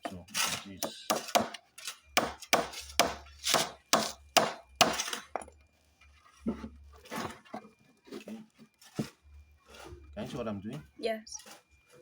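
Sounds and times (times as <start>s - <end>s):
hammer striking wooden boards: 0.8s - 1.6s, 2.2s - 5.2s.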